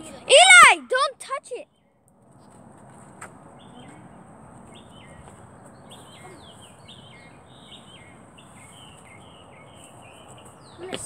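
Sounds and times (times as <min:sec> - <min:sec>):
birds chirping: 0:03.4 - 0:11.0.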